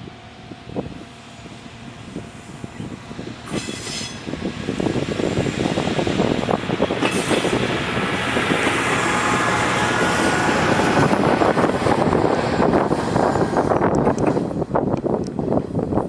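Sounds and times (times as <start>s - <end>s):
train wheels rumbling on rails: 0.0s - 16.0s
high wheel squeal: 1.4s - 8.0s.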